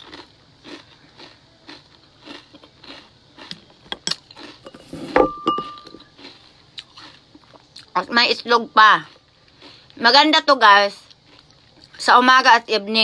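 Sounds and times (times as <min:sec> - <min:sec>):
chewing crunchy cereal: 0:00.0 - 0:12.1
metal spoon knocking glass: 0:05.2 - 0:06.0.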